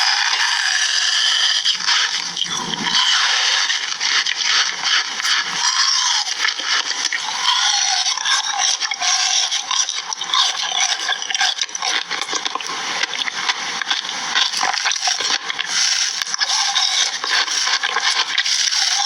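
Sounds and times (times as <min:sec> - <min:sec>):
crunchy food crackling: 0:00.0 - 0:19.0.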